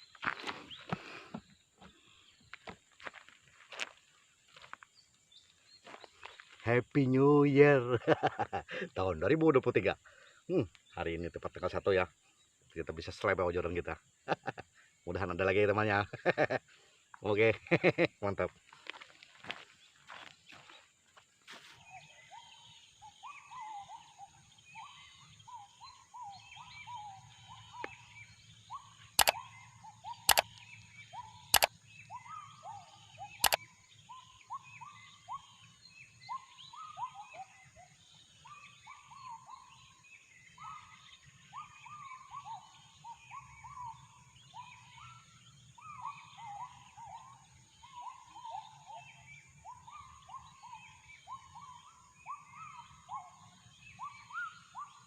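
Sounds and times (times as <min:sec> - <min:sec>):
birds chirping: 0:00.0 - 0:55.0
gibbons calling: 0:22.0 - 0:55.0
sharp clicks: 0:30.3 - 0:30.6.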